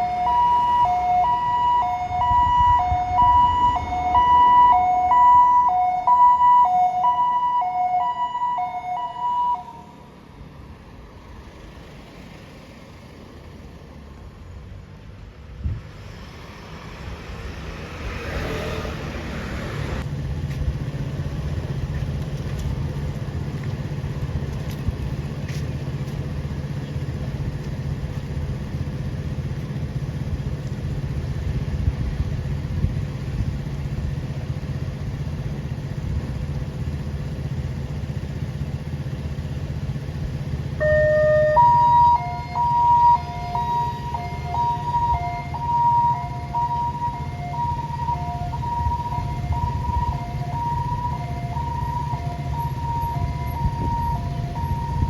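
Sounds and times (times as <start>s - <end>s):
two-tone siren: 0.0s - 10.0s, 40.8s - 55.0s
ambulance engine humming: 0.0s - 55.0s.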